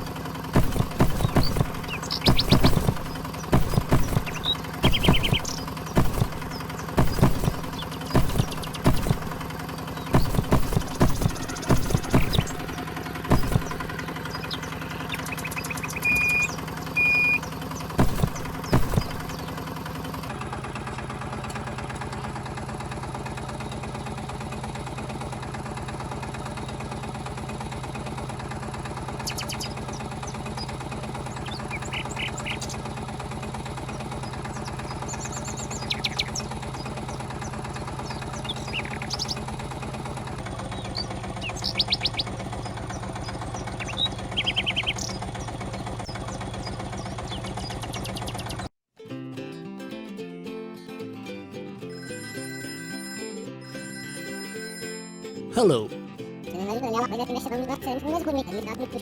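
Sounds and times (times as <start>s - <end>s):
sharp clicks and knocks: 0.0s - 14.1s, 18.0s - 19.6s
small motor humming: 0.0s - 22.0s
short high beeps: 16.1s - 17.4s, 51.9s - 55.9s.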